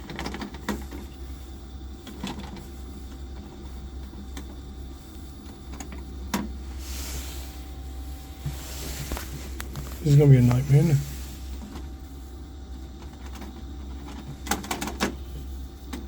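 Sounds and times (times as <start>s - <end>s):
boiler humming: 0.0s - 16.0s.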